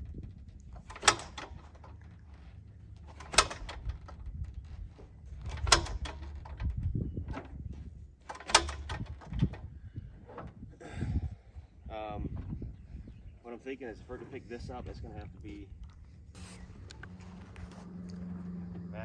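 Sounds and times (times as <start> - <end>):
propeller engine cranking cracks: 0.0 - 7.6, 8.2 - 9.7, 16.3 - 18.9.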